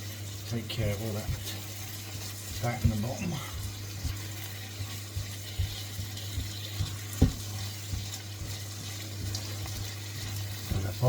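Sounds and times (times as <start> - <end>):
puree sizzling in a wok: 0.0 - 11.0
utensil knocking on pan: 2.4 - 11.0.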